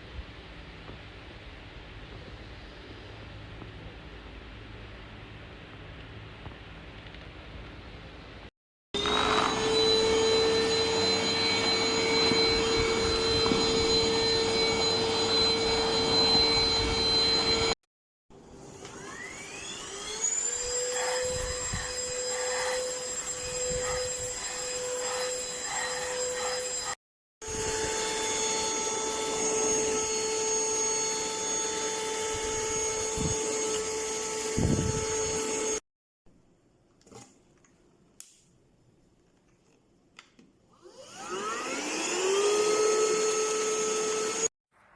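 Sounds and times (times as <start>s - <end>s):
handheld vacuum cleaner running: 9.0s - 17.8s, 18.5s - 35.8s, 40.7s - 44.5s.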